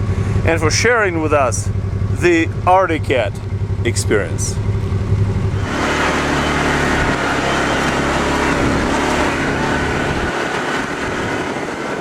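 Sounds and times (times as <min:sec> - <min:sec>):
utility vehicle engine running: 0:00.0 - 0:12.0
wind noise: 0:05.5 - 0:12.0.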